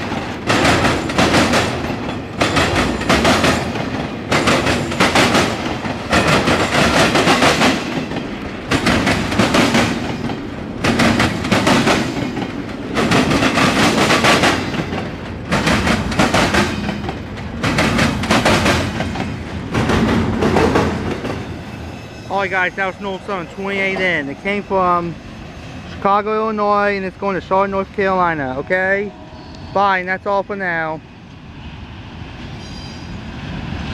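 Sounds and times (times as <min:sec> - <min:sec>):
train wheels clattering over rails: 0:00.0 - 0:25.2.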